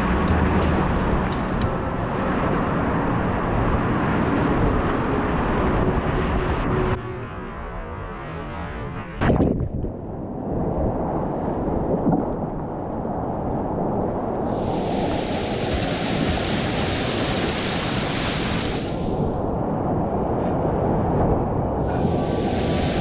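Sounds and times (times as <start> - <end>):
floodwater roar: 0.0 - 6.9, 11.7 - 23.0
splashing water hiss: 14.4 - 19.5, 21.8 - 23.0.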